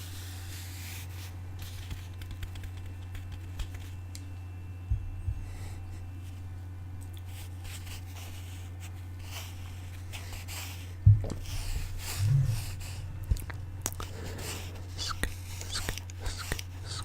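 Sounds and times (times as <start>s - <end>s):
steady low hum: 0.0s - 17.0s
scratching and tapping: 1.7s - 3.9s, 11.0s - 17.0s
dull thump: 11.0s - 13.8s.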